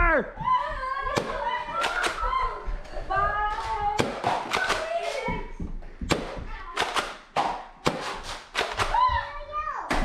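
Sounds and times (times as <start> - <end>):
people shouting: 0.0 - 2.8.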